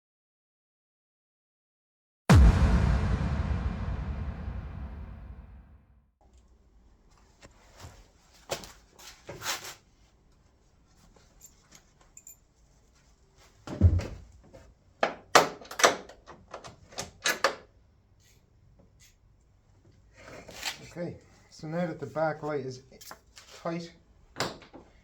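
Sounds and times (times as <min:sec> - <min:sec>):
heavy thump: 0:02.3 - 0:05.8.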